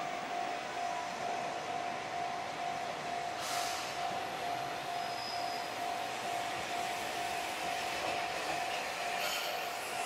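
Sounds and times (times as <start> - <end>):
diesel railcar approaching: 0.0 - 10.0
short hiss: 3.4 - 3.9.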